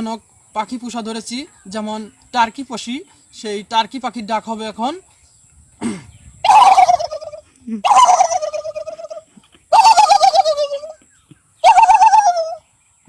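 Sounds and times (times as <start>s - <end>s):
man imitating turkey gobble: 6.4s - 11.0s, 11.6s - 12.6s.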